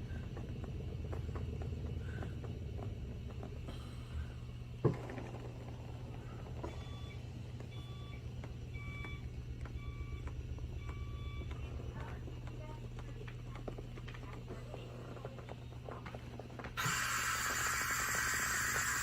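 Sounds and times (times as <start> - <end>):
massage machine motor humming: 0.0 - 19.0.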